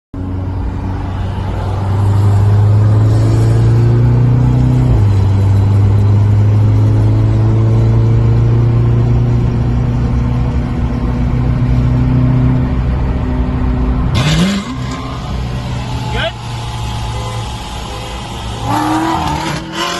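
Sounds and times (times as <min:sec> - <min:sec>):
car engine accelerating hard: 0:01.8 - 0:19.9.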